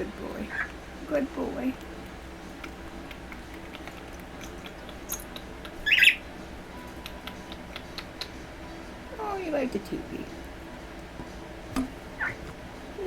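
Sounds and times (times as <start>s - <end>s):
cockatiel squawk: 0.5s - 0.8s, 5.8s - 6.2s, 12.2s - 12.4s.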